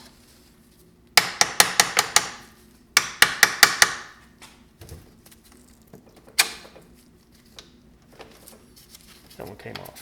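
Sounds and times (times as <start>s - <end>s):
hammer striking metal: 1.2s - 2.4s.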